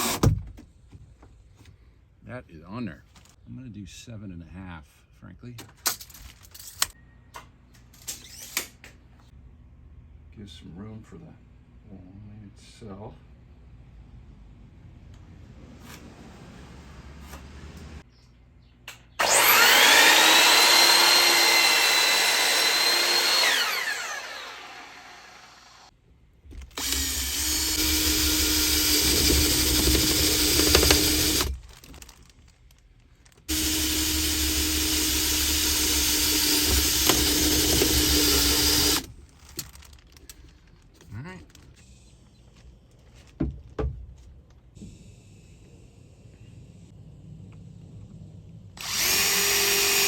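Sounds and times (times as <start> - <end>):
power tool cutting wood: 0.0 - 0.3, 19.2 - 25.9, 26.7 - 31.6, 33.5 - 39.1, 48.8 - 50.0.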